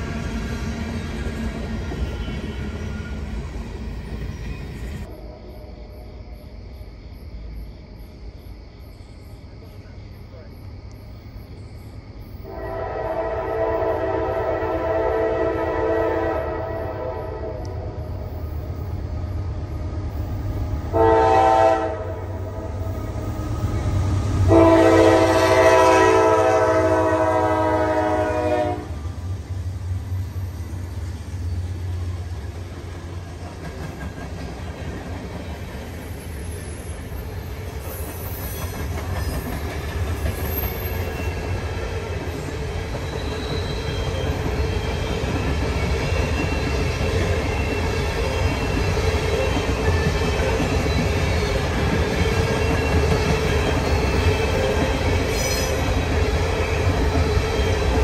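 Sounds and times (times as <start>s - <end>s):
train wheels rumbling on rails: 0.0s - 5.1s, 12.4s - 58.0s
locomotive air horn blast: 12.5s - 17.7s, 20.9s - 22.3s, 24.5s - 28.9s.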